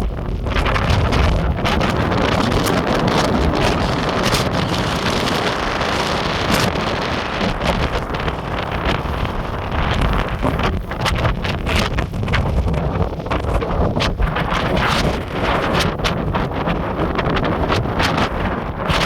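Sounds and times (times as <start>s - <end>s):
surf rushing on beach: 0.0s - 19.0s
wind buffeting microphone: 0.0s - 19.0s.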